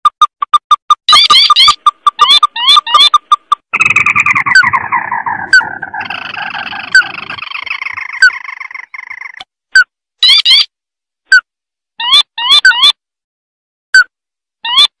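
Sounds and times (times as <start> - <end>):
crake chattering trill: 1.1 - 9.4
sharp bird notes: 1.1 - 9.4.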